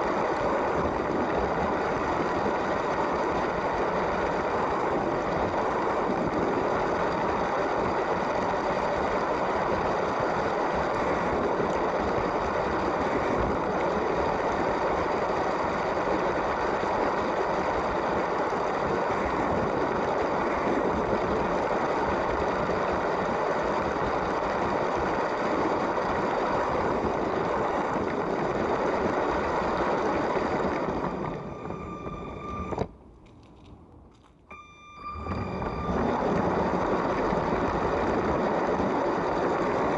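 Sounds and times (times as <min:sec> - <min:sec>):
train running rattle: 0:00.0 - 0:39.9
toy train motor whining: 0:28.6 - 0:33.6, 0:34.2 - 0:39.9.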